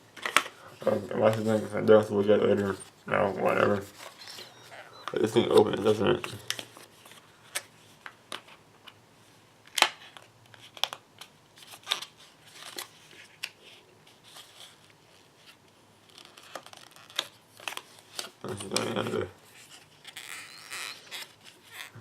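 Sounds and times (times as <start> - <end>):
packaging rustling: 10.1 - 22.0.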